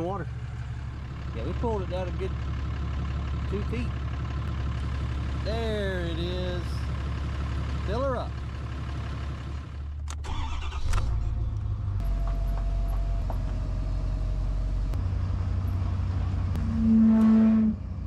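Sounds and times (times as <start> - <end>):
vehicle engine running: 0.0 - 18.0
loud steady pitched tone: 16.6 - 17.8.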